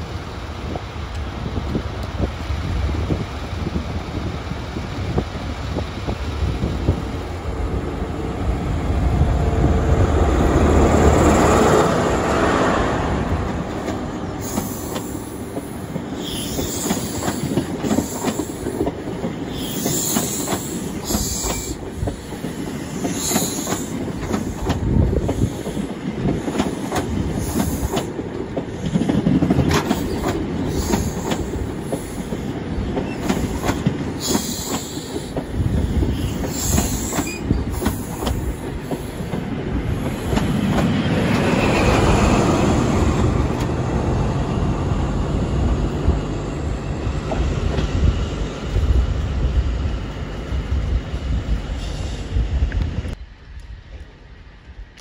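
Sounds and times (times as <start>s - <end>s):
diesel locomotive rumble: 0.0s - 55.0s
train wheels clicking over rail joints: 13.5s - 42.3s.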